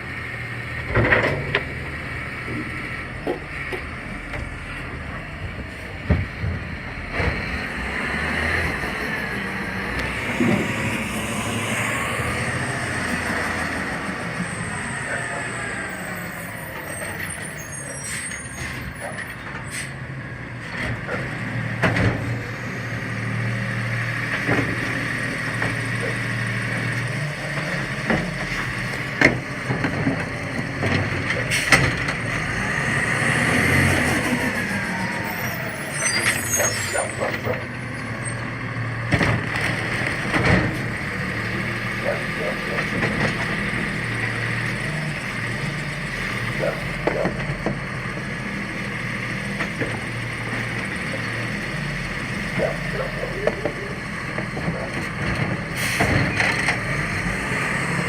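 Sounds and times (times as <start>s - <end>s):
garbage truck engine running: 0.0s - 58.0s.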